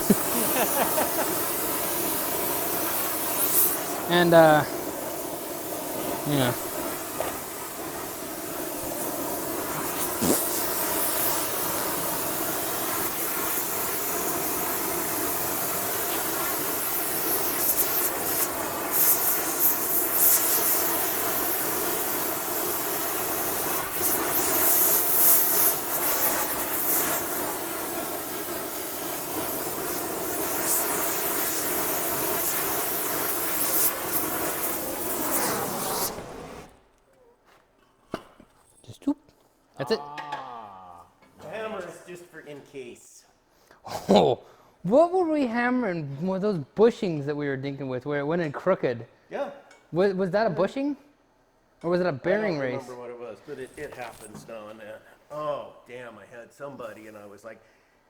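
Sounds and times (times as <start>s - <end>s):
welding hiss and crackle: 0.0s - 37.1s, 53.5s - 55.0s.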